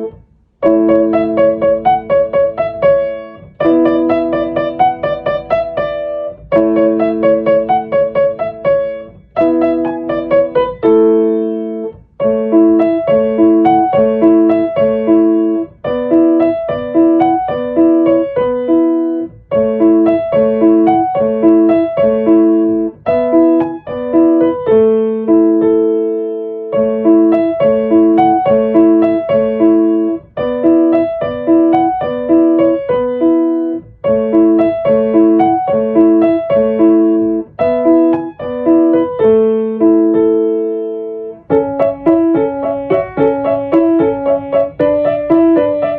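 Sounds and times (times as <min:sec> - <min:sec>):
solo piano music: 0:00.0 - 0:45.9.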